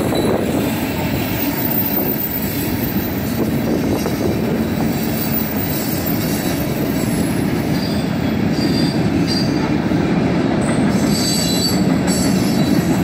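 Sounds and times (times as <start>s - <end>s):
freight train wheels rumbling: 0.0s - 13.0s
high-pitched wheel squeals: 4.8s - 9.5s, 10.9s - 13.0s.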